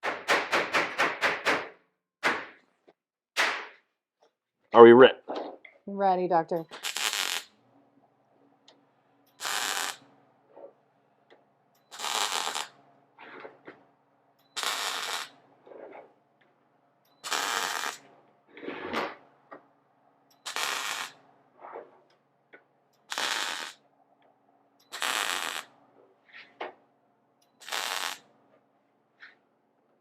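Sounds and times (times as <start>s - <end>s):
welding sputters: 6.5s - 7.6s, 9.3s - 10.1s, 11.8s - 13.6s, 14.5s - 16.1s, 17.2s - 19.3s, 20.4s - 21.8s, 23.0s - 23.8s, 24.8s - 25.8s, 27.6s - 28.3s
tack welding crackling bursts: 6.6s - 7.6s, 9.3s - 10.2s, 11.8s - 13.4s, 14.5s - 15.9s, 17.2s - 19.2s, 20.3s - 21.3s, 23.0s - 23.8s, 24.8s - 25.8s, 27.6s - 28.3s.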